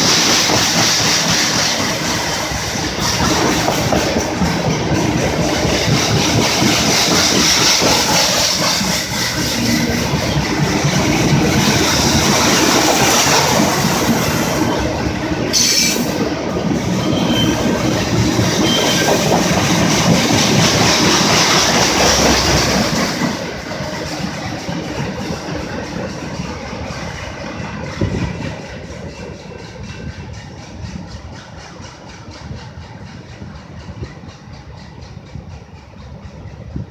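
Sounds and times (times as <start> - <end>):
train wheels clattering over track: 0.0 - 36.9
high wheel squeal: 15.5 - 16.2, 16.9 - 19.5.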